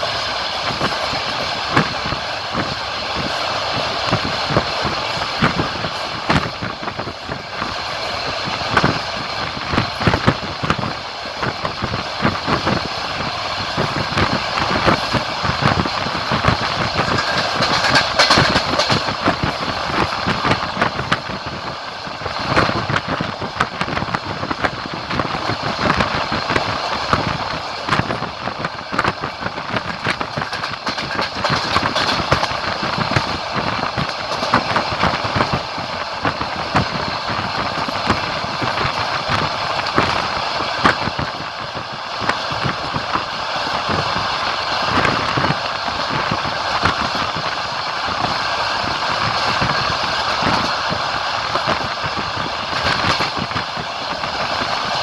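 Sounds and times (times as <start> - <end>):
train wheels rumbling on rails: 0.0 - 55.0
clicks and rattles: 16.3 - 20.6, 28.9 - 41.3.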